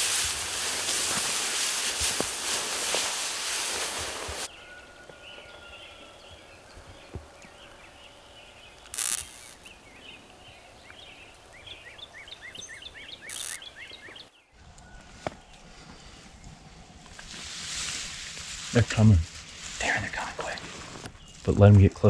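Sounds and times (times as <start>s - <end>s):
rustling: 0.0s - 4.5s, 8.7s - 9.8s, 13.2s - 14.2s, 15.0s - 22.0s
small birds chirping: 2.2s - 17.7s, 18.6s - 22.0s.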